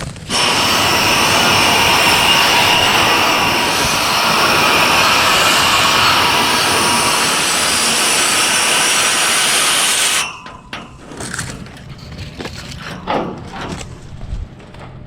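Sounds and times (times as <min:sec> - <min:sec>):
hose nozzle spraying water: 0:00.3 - 0:10.4.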